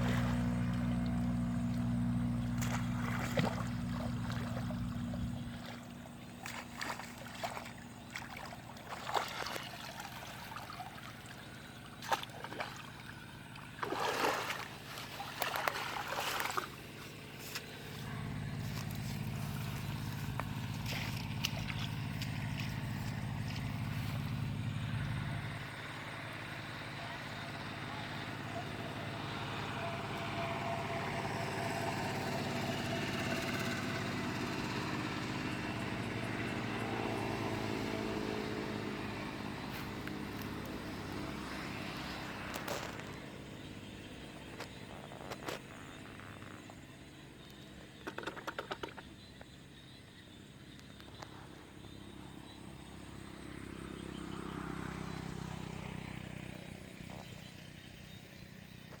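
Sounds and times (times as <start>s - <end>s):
vehicle engine passing: 0.0s - 46.7s, 51.8s - 58.5s
another engine passing: 0.0s - 47.5s, 51.6s - 58.9s.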